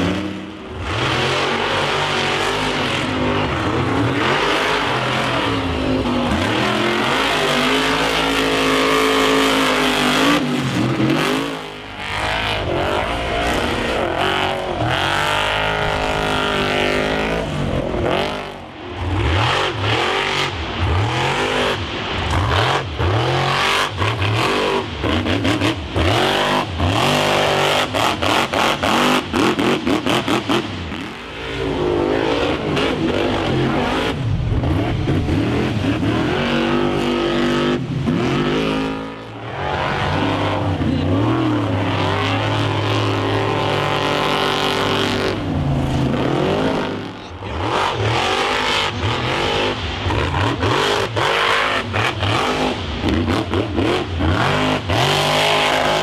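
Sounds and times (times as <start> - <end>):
monster truck engine revving: 0.0 - 56.0.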